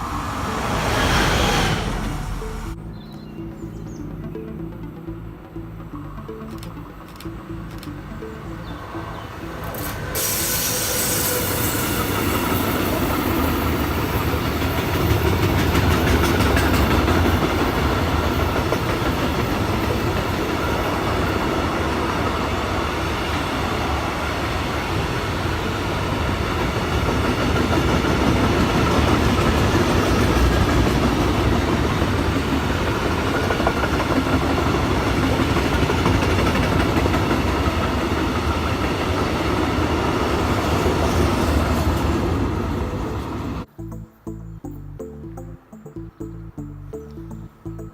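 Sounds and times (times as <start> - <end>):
train wheels rumbling on rail: 0.0 - 2.8, 9.0 - 43.7
clickety-clack over rail joints: 12.0 - 21.6, 26.0 - 42.6.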